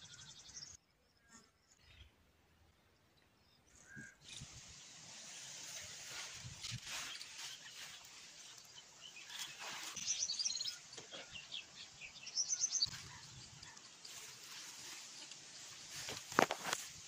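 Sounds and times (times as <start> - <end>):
small bird chirping: 5.7 - 16.5.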